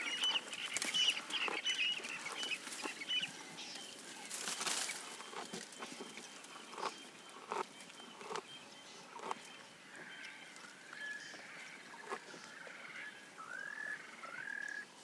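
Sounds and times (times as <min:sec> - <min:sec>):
birds calling: 0:00.0 - 0:14.9
leafy rustling: 0:02.1 - 0:06.5
chewing crunches: 0:06.6 - 0:08.4.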